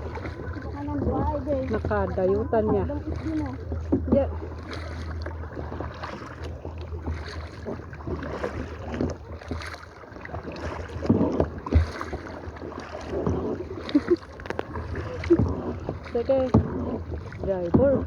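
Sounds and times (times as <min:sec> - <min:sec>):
paddles splashing in water: 0:00.0 - 0:18.0
wind rumbling on microphone: 0:00.0 - 0:18.0.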